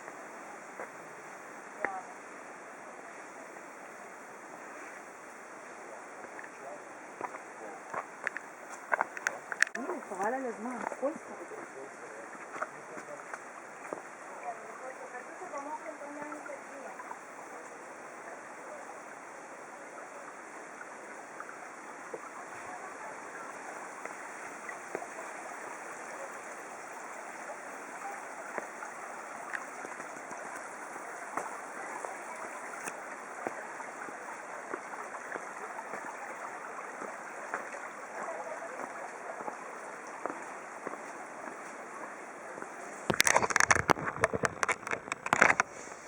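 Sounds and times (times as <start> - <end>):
stream water rushing: 0.0 - 46.0
small clicks and ticks: 8.2 - 9.8, 43.1 - 46.0.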